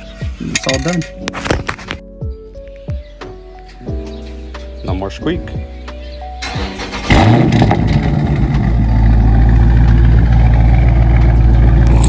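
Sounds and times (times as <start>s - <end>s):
car engine revving: 6.4s - 12.0s.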